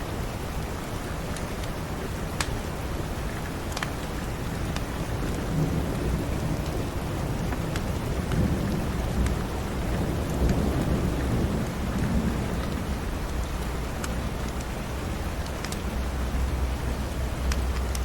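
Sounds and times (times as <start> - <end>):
steady rain: 0.0 - 18.0
wood fire crackling: 0.9 - 18.0
rumble of thunder: 5.1 - 13.6.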